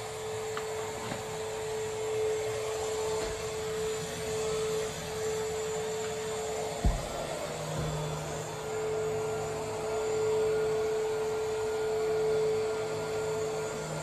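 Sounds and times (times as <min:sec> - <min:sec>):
vacuum cleaner whining: 0:00.0 - 0:14.0
thump: 0:03.2 - 0:03.6, 0:06.8 - 0:08.2.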